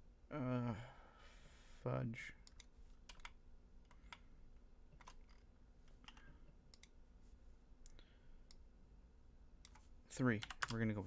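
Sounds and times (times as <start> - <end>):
faint low hum: 0.0 - 11.0
keyboard and mouse clicks: 2.4 - 4.2, 5.0 - 7.0.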